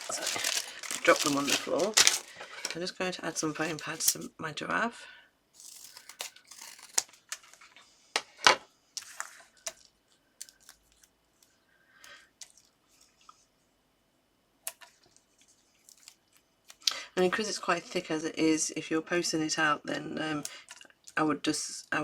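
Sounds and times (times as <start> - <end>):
paper rustling: 0.0 - 4.3.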